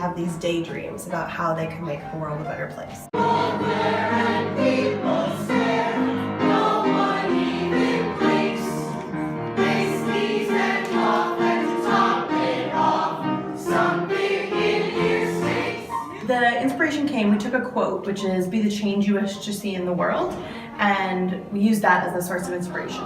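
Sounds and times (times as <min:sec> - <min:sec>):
ensemble singing in chorus: 0:03.1 - 0:16.0.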